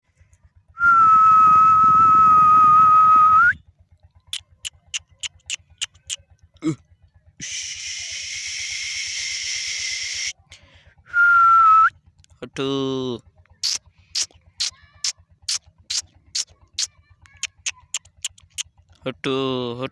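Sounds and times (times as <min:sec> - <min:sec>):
loud high whistle: 0:00.8 - 0:03.6
sharp clicks: 0:15.5 - 0:19.0.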